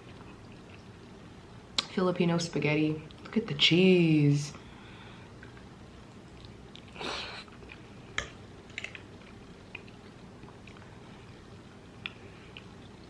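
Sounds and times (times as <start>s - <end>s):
person chewing food: 0.0s - 1.1s, 5.2s - 13.0s.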